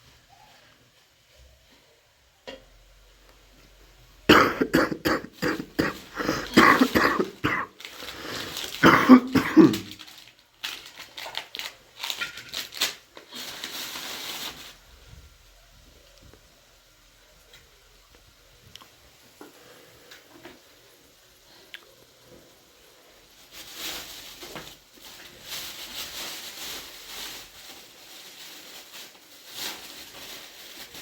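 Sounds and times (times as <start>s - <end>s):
person coughing: 4.3s - 10.0s.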